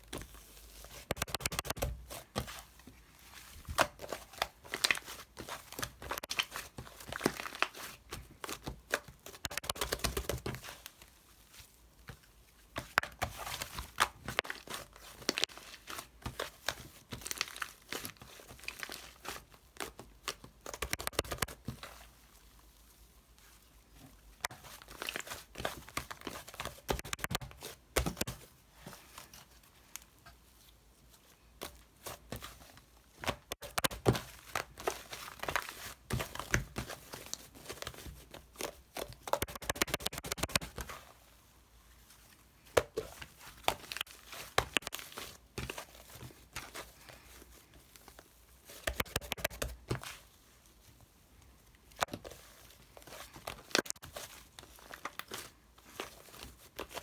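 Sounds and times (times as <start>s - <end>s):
scratching tapping and crinkling: 1.1s - 2.5s, 9.0s - 10.7s, 20.4s - 21.9s, 25.8s - 28.4s, 33.2s - 37.9s, 38.6s - 40.9s, 43.6s - 45.8s, 48.9s - 50.1s.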